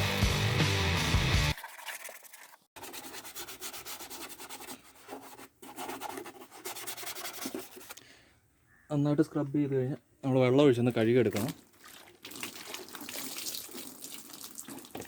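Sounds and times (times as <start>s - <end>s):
brush scrubbing plastic: 1.5s - 8.0s.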